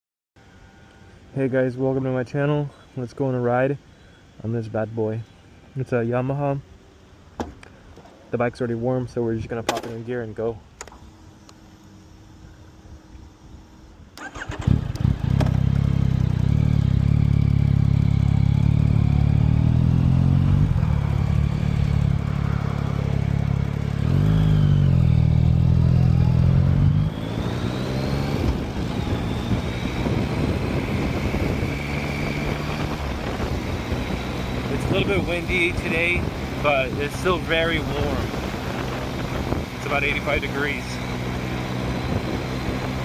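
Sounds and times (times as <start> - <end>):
motorcycle engine running: 14.6 - 43.0.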